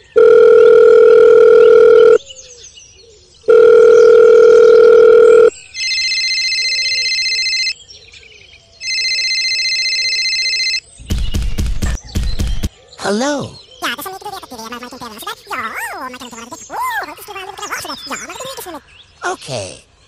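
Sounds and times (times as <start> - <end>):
low telephone beeps: 0.1 - 2.2, 3.5 - 7.8, 8.8 - 10.8
telephone ringing tone: 0.1 - 2.2, 3.5 - 7.8, 8.8 - 10.8.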